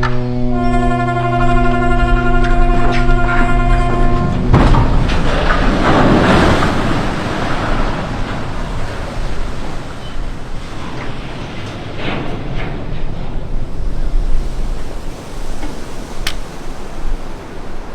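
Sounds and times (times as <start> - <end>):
wind buffeting microphone: 1.9 - 17.9
waves washing at shore: 4.3 - 17.9.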